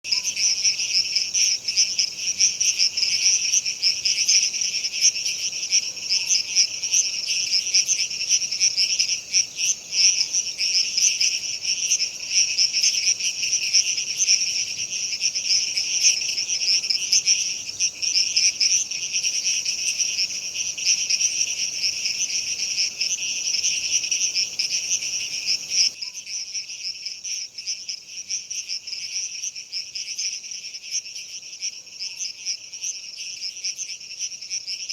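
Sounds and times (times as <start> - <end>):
crickets chirping chorus: 0.0 - 34.9
faint low hiss: 0.1 - 26.0.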